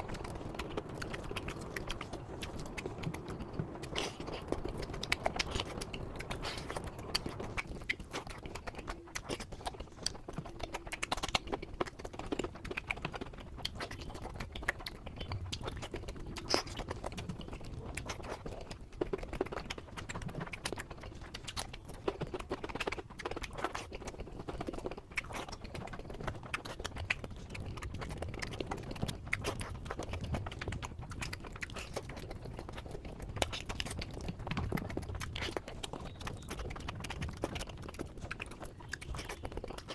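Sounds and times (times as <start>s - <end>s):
chewing and biting: 0.0s - 39.9s.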